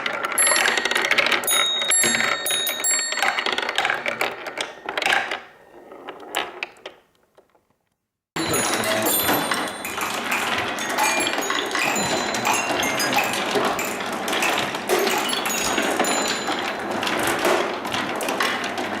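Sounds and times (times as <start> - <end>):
marbles clattering on wooden track: 0.0 - 7.0, 8.4 - 19.0.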